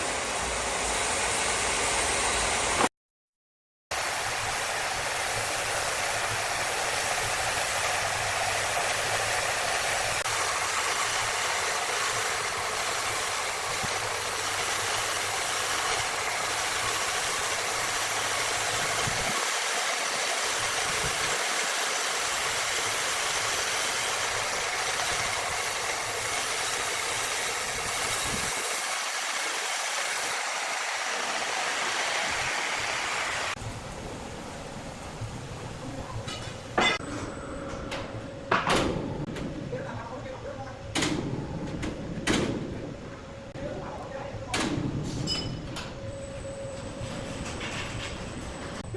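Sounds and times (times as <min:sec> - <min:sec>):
sawmill saw running: 0:00.0 - 0:02.9, 0:03.9 - 0:33.6.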